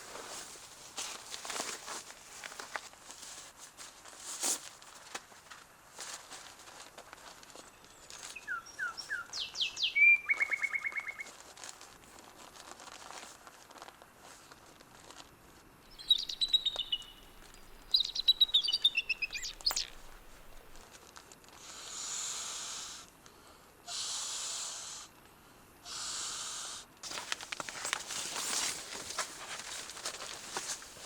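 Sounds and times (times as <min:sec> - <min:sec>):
rustling crackling clicks: 0:00.0 - 0:08.4, 0:10.4 - 0:15.4, 0:27.0 - 0:31.0
songbird chirping: 0:07.5 - 0:11.4, 0:15.8 - 0:20.8.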